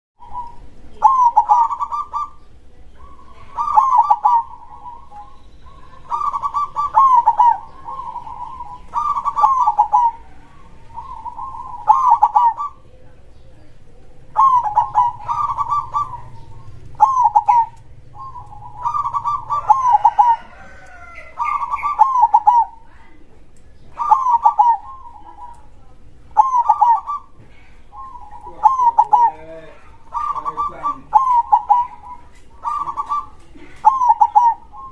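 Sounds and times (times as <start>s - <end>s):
high chirping: 0.2s - 23.0s, 23.7s - 34.9s
dove cooing: 0.2s - 34.9s.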